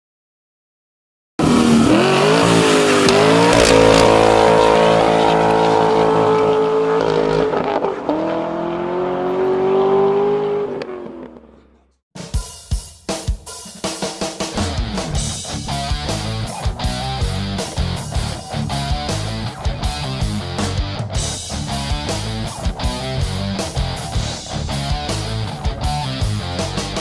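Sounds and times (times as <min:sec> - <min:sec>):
car engine accelerating: 0:01.4 - 0:11.7.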